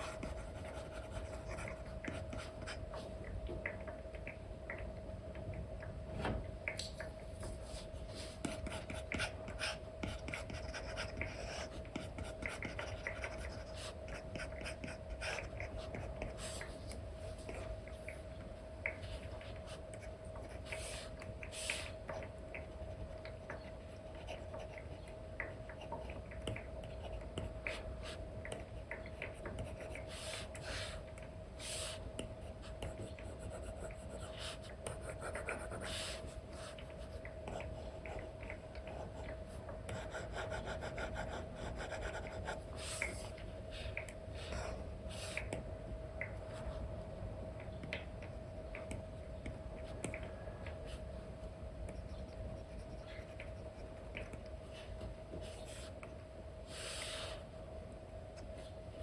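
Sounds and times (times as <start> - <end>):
steady low hum: 0.0 - 59.0
stylus scratching and tapping screen: 51.8 - 56.1.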